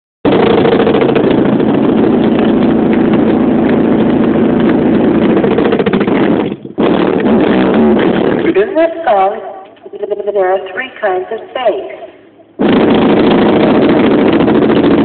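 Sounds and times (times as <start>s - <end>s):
car engine running loud: 0.2s - 8.6s, 12.6s - 15.0s.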